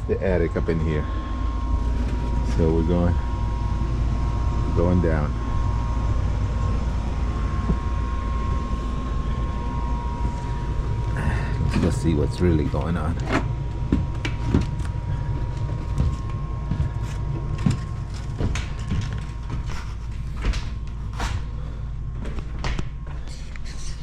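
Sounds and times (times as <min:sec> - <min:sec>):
faint steady whine: 0:00.0 - 0:24.0
low steady rumble: 0:00.0 - 0:24.0
knocks and footfalls indoors: 0:05.4 - 0:23.3.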